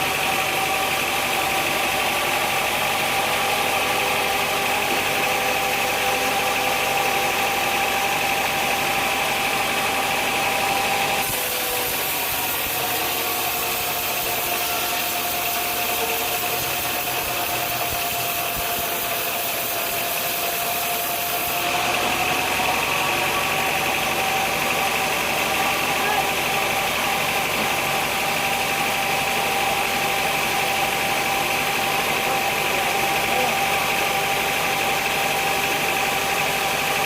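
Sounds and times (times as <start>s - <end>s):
sawmill machinery hum: 0.0s - 37.0s.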